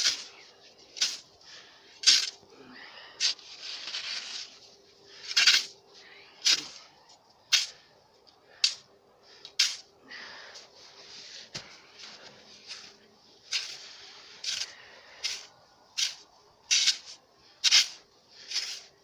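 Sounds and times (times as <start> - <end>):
shovel crunching snow: 0.0 - 2.4, 3.2 - 5.8, 6.4 - 6.9, 9.6 - 9.9, 11.0 - 19.0.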